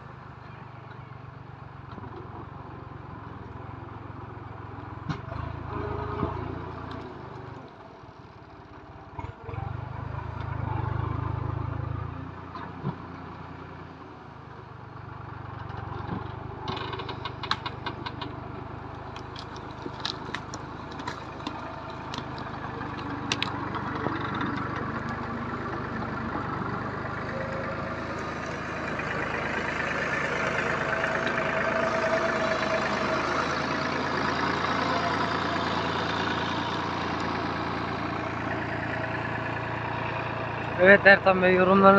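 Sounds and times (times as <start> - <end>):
tractor engine running: 0.0 - 41.9
sharp clicks and knocks: 16.1 - 18.4.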